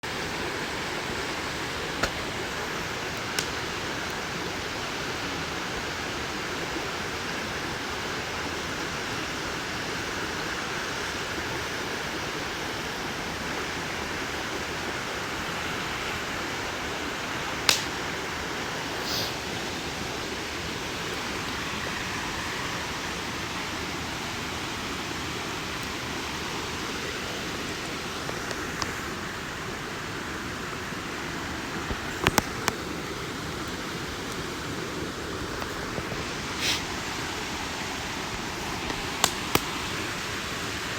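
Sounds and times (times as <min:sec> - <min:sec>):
campfire hissing: 0:00.0 - 0:40.9
fire popping: 0:00.5 - 0:06.9, 0:17.3 - 0:19.6, 0:25.4 - 0:29.5, 0:31.6 - 0:40.6.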